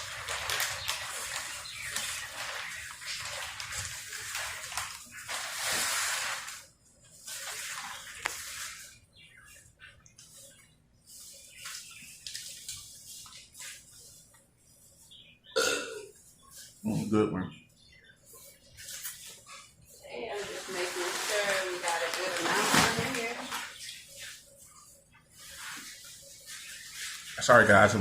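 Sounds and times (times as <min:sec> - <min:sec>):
newspaper rustling: 0:00.0 - 0:09.1, 0:10.2 - 0:14.4, 0:18.4 - 0:28.0.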